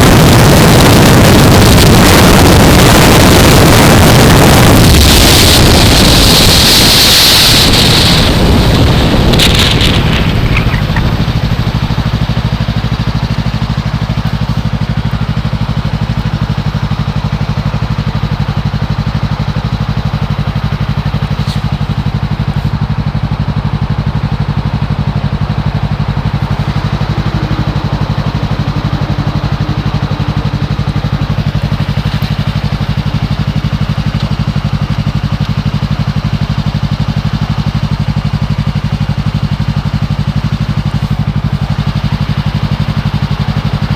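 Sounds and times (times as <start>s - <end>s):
wind rush on helmet: 0.0s - 12.2s
motorcycle engine idling: 0.0s - 43.9s.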